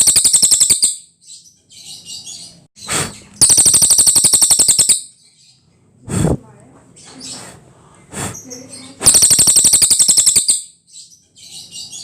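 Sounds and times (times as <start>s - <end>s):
songbird singing with fast trill: 0.0s - 2.6s, 3.2s - 5.6s, 8.5s - 12.0s.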